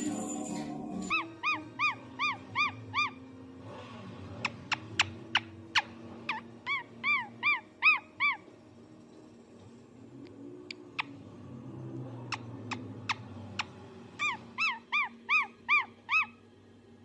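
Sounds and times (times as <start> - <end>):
parrot whistled calls: 1.1 - 3.2, 4.4 - 8.5, 14.2 - 16.4
parrot sharp chirps: 4.4 - 8.4, 12.3 - 16.4.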